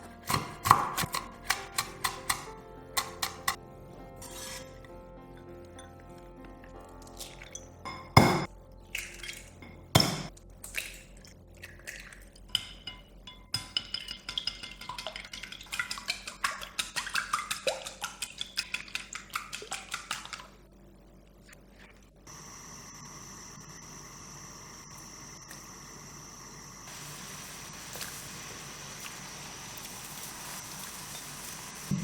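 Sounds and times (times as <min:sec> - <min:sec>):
utensil clinking against bowl: 0:01.1 - 0:03.6, 0:12.5 - 0:20.2.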